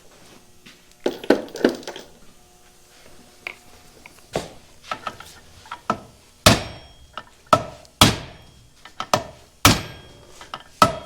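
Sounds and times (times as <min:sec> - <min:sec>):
hammer striking metal: 0:05.9 - 0:11.0.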